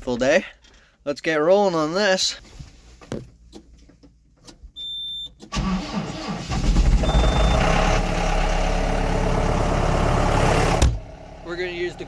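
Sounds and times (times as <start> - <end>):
electronic warning beep: 4.8 - 5.3, 7.0 - 7.8
tractor engine starting and idling: 5.4 - 12.0.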